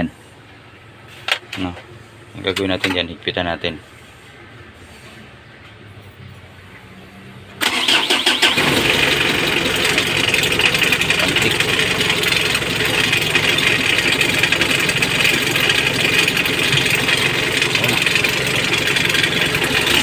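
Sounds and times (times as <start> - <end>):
diesel engine idling: 7.5 - 20.0
diesel engine cranking: 7.6 - 20.0.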